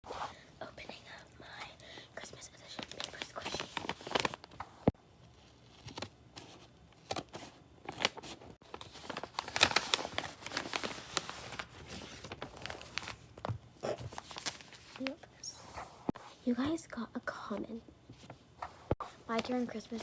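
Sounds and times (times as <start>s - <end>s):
paper crinkling and rustling: 2.6s - 4.6s, 5.3s - 15.2s, 19.3s - 20.0s.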